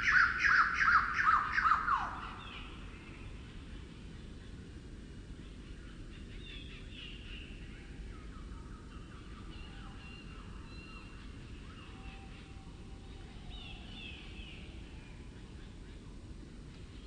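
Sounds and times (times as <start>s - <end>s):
slowed down birdsong: 0.0s - 4.8s.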